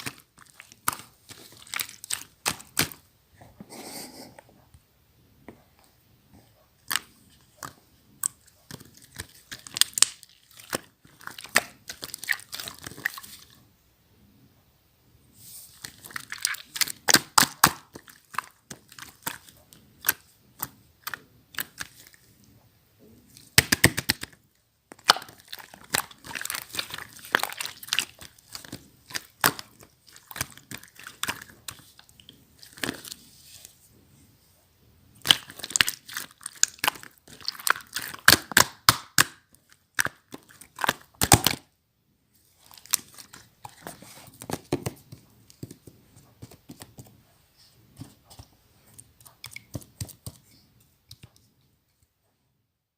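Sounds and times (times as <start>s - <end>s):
slime squished by hand: 0.0s - 3.0s, 6.8s - 13.5s, 15.7s - 22.2s, 23.3s - 33.2s, 35.2s - 41.7s.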